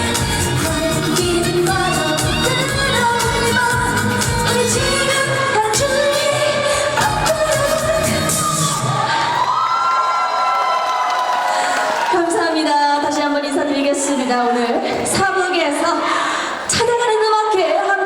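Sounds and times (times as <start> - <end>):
band backing track with beat: 0.0 - 6.4
woman singing: 0.0 - 9.0.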